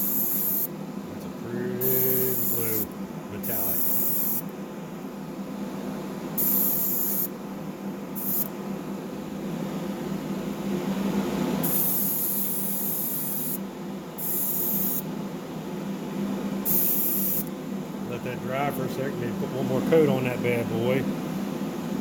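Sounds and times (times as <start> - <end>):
airbrush hissing: 0.0 - 0.7, 1.8 - 4.4, 6.4 - 7.3, 8.2 - 8.5, 11.6 - 13.6, 14.2 - 15.1, 16.6 - 17.5
small air compressor humming: 0.0 - 4.6, 5.4 - 7.4, 8.1 - 22.0.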